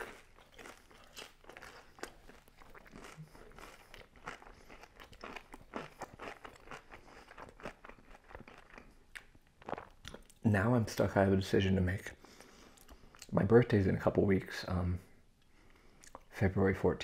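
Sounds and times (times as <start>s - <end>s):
person chewing crispy food: 0.0s - 10.4s.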